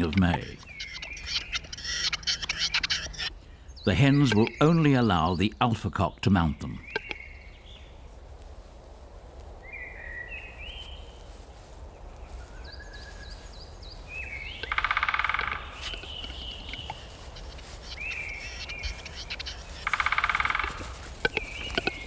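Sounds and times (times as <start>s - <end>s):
birds chirping: 0.0s - 8.1s, 9.6s - 22.0s
loud rapid bird rattle: 18.4s - 22.0s.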